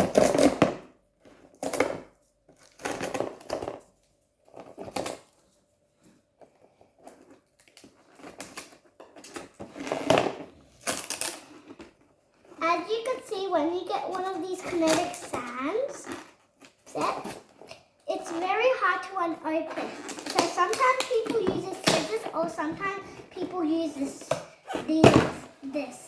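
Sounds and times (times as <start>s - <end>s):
packaging crinkling and rustling: 6.4s - 12.6s.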